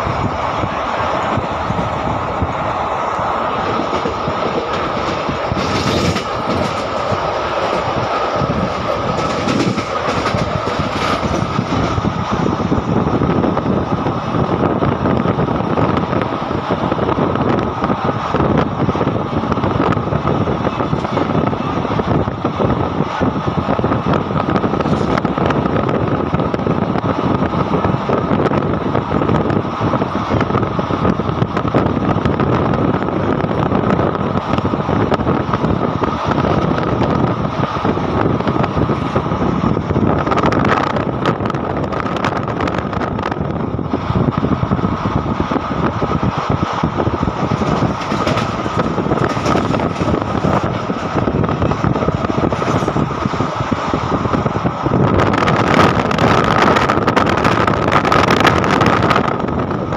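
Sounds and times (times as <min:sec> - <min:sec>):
steady high whine: 0:00.0 - 0:59.9
train wheels rolling on rails: 0:00.0 - 0:59.9
wind rushing past: 0:00.0 - 0:59.9
wheels clattering over track joints: 0:03.6 - 0:12.0, 0:47.4 - 0:53.5.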